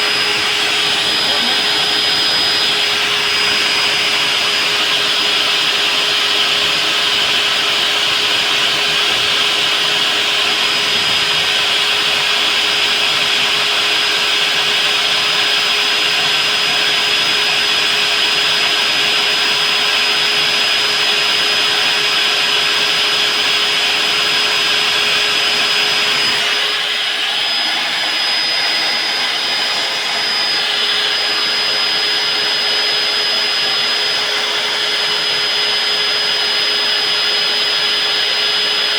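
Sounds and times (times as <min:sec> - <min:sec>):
core drill grinding concrete: 0:00.0 - 0:38.9.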